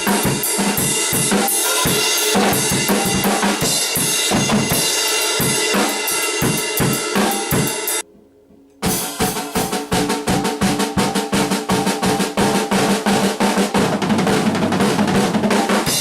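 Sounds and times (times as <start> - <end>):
acoustic drum kit: 0.0 - 8.0, 8.7 - 16.0.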